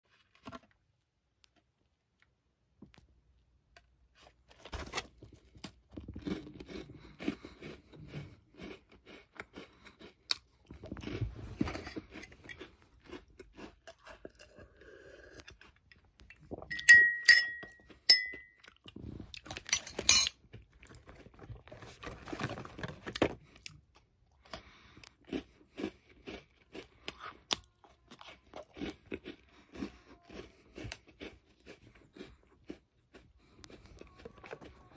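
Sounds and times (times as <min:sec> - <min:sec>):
crunching cookies: 0:00.1 - 0:34.9
person drinking milk: 0:06.0 - 0:19.5
glass clinking: 0:16.7 - 0:18.6, 0:19.7 - 0:20.3.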